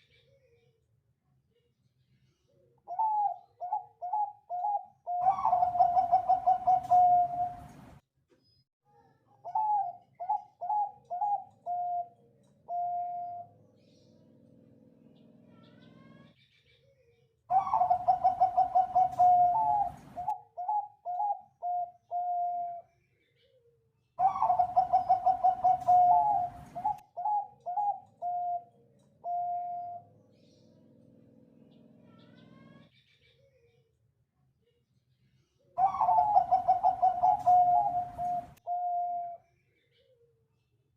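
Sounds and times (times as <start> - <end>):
dove cooing: 2.9 - 7.9, 9.4 - 13.6, 17.5 - 22.8, 24.2 - 30.2, 35.8 - 39.4.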